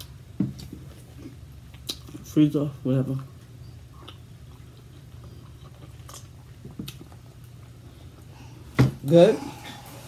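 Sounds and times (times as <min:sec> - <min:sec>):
soft chewing: 0:00.0 - 0:02.4, 0:03.0 - 0:08.6
steady low hum: 0:00.0 - 0:10.0.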